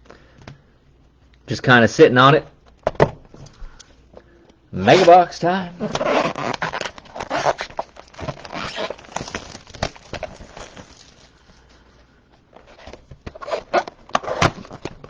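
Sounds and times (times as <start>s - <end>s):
plastic wrapping crinkling and tearing: 5.8s - 15.0s.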